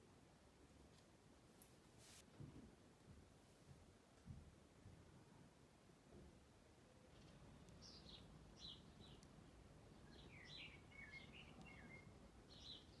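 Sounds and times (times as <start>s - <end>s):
faint bird chirps: 7.0s - 13.0s.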